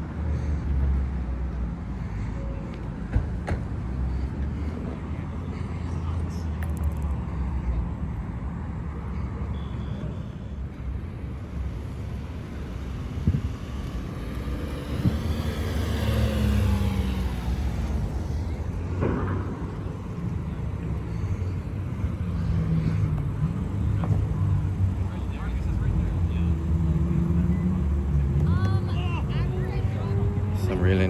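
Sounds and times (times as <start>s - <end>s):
car engines idling: 0.0s - 31.0s
car driving past: 10.9s - 23.6s.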